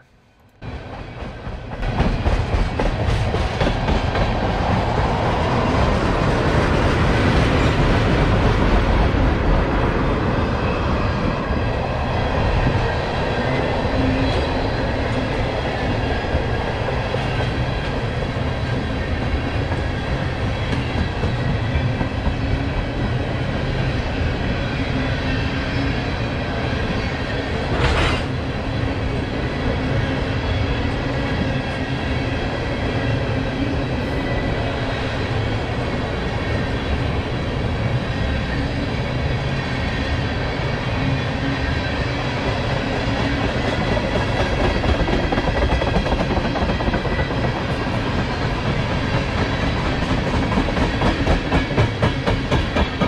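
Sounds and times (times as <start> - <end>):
wheels clickety-clack on rails: 0.6 - 10.3, 12.4 - 24.6, 26.5 - 28.4, 41.6 - 53.0
freight train rumbling past: 0.6 - 53.0.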